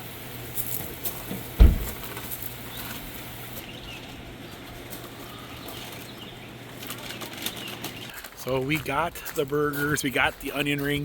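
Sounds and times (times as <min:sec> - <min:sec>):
low thump: 0:01.6 - 0:02.1.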